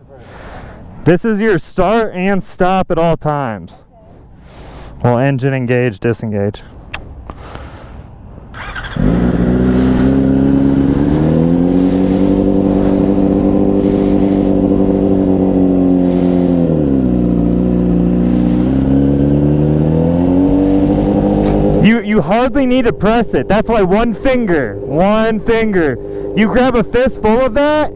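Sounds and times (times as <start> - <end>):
motorcycle engine revving: 8.5 - 27.9.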